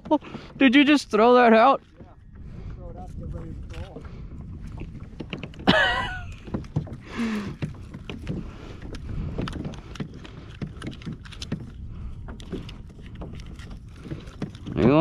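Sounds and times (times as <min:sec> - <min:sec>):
water slapping against kayak hull: 0:00.0 - 0:15.0
wind rumble on microphone: 0:00.0 - 0:15.0
small clicks and knocks: 0:04.8 - 0:15.0.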